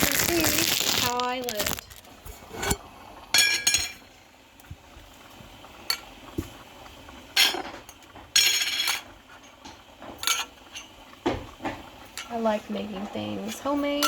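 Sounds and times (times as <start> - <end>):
metal utensil clinking on pot: 3.4 - 4.0, 10.2 - 10.9.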